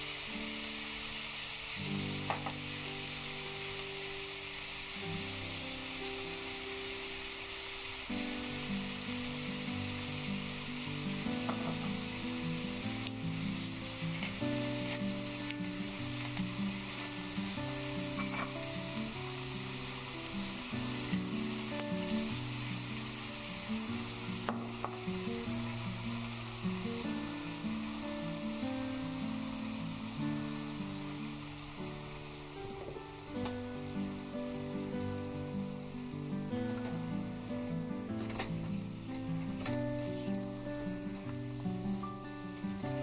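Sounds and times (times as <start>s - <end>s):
food sizzling in a wok: 0.0s - 43.0s.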